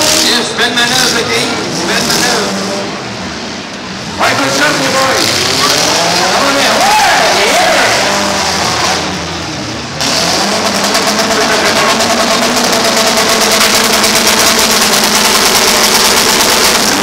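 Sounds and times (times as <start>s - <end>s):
car engines revving unevenly: 0.0s - 17.0s.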